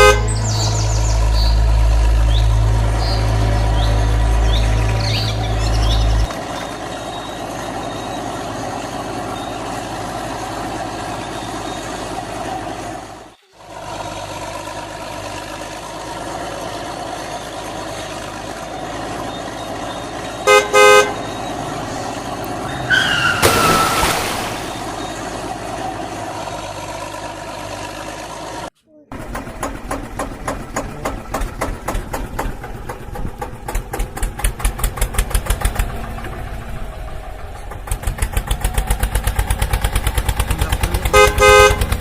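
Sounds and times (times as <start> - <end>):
vehicle horn tooting: 0.0 - 0.7, 20.3 - 21.6, 40.6 - 42.0
vehicle engine noise: 0.0 - 42.0
hiss with falling squeal: 22.7 - 24.7.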